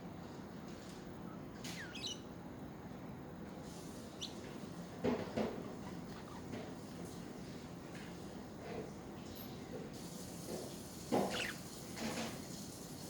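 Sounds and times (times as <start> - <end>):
budgerigars chirping: 1.7 - 2.3, 4.1 - 4.6, 5.6 - 6.6, 11.1 - 12.2.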